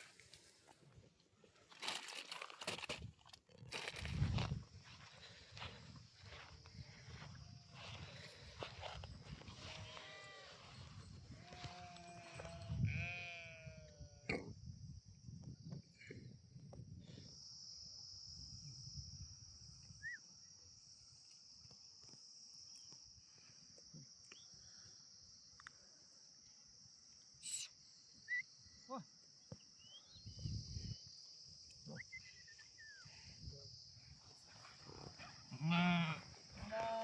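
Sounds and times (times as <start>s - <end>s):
livestock bleating: 9.6s - 10.8s, 11.4s - 14.4s, 35.5s - 37.0s.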